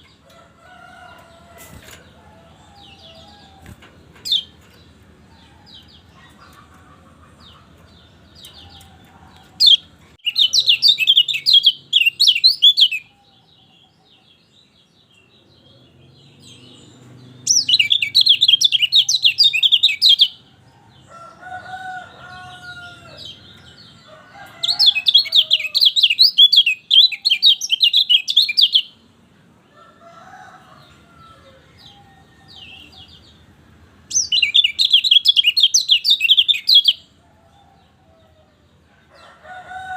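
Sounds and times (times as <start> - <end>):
bird twittering song: 1.0 - 21.1, 22.2 - 29.0, 34.1 - 37.7.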